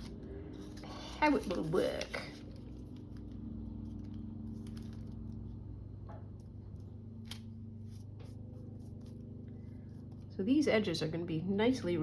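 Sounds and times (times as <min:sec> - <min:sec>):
hands handling paper: 0:00.0 - 0:05.4
steady low hum: 0:00.0 - 0:12.0.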